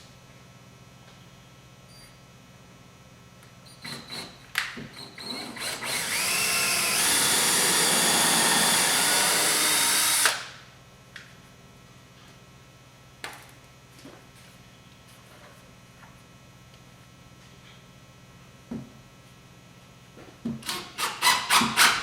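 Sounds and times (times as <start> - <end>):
power drill running: 5.0 - 10.6.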